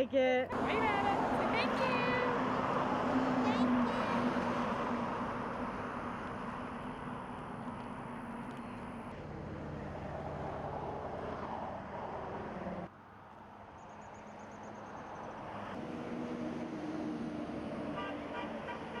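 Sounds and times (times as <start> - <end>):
trucks passing with road noise: 0.0 - 19.0.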